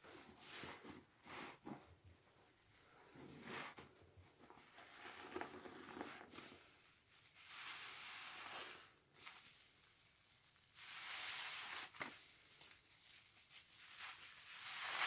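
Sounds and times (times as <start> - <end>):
sponge squelching: 3.0 - 9.5, 10.8 - 12.2, 13.9 - 15.0
crackling suds: 4.7 - 10.0, 13.6 - 15.0.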